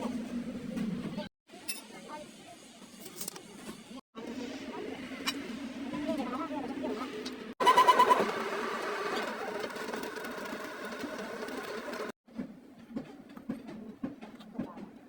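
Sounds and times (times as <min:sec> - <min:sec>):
machine running: 0:07.6 - 0:12.1.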